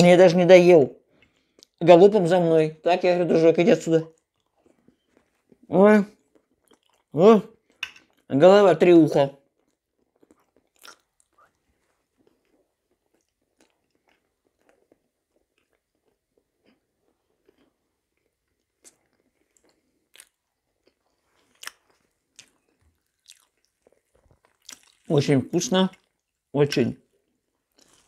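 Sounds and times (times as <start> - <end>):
close-miked chewing: 1.1 - 1.8, 4.0 - 8.3, 9.4 - 28.0
soft mouth clicks: 1.2 - 1.8, 10.4 - 11.6.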